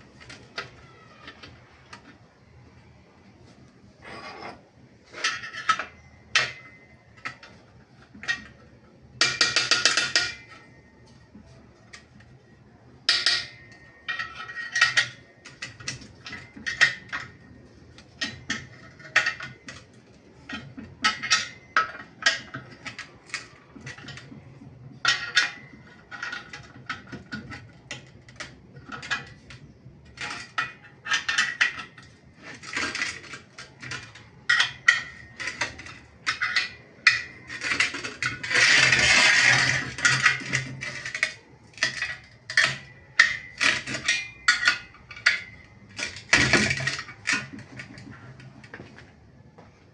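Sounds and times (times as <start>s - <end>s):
metal scraping and rattling: 3.3s - 49.2s
metal tools clinking: 13.1s - 48.8s.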